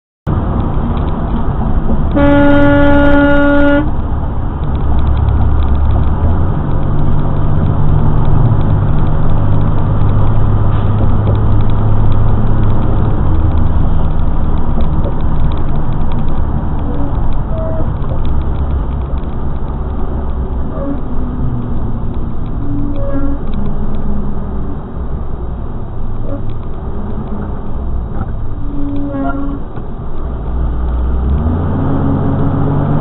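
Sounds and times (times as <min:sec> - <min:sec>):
engine and road rumble: 0:00.2 - 0:33.0
vehicle horn: 0:02.1 - 0:03.9, 0:22.9 - 0:23.4.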